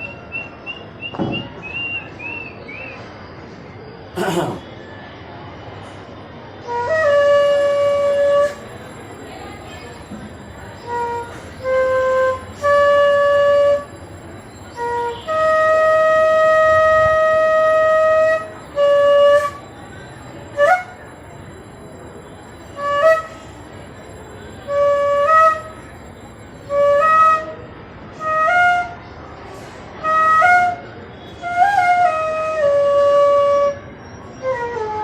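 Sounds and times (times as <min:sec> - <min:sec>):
flute playing slow notes: 0:06.6 - 0:08.7, 0:10.6 - 0:19.7, 0:20.6 - 0:21.1, 0:22.8 - 0:23.5, 0:24.7 - 0:25.8, 0:26.6 - 0:29.2, 0:30.0 - 0:35.0.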